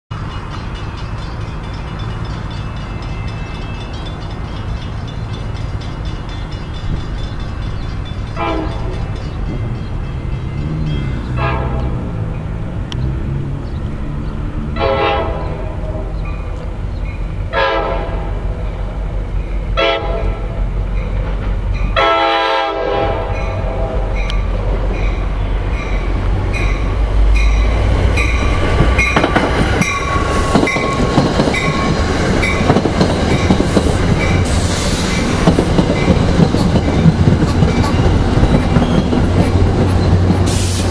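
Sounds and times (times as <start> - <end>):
train horn blasts: 8.4 - 9.1, 11.3 - 12.3, 14.6 - 16.3, 17.5 - 18.5, 19.8 - 20.6, 21.9 - 24.3
train wheels clicking over rail joints: 24.2 - 40.9.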